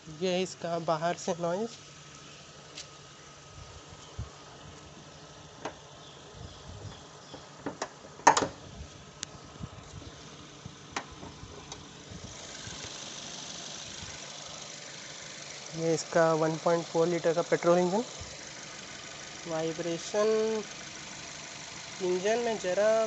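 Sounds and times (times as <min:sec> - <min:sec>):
car engine idling: 0:00.0 - 0:23.0
light clicks and knocks: 0:07.3 - 0:08.6.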